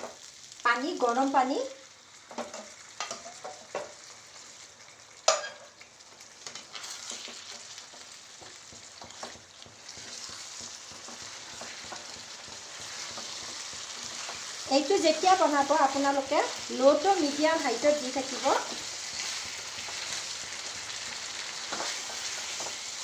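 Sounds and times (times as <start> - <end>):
food sizzling in a pan: 0.0 - 23.0
spoon knocking against pan: 5.3 - 5.7.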